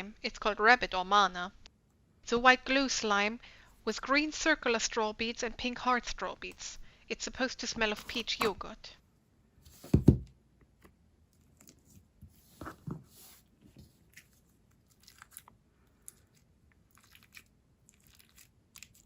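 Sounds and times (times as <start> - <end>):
container thump: 9.8 - 10.3.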